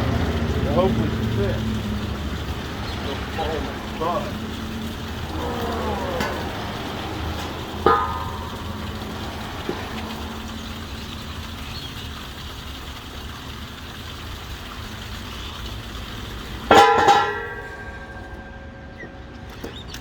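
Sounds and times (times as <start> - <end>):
metal grate clanging: 5.2 - 10.2, 16.7 - 19.8.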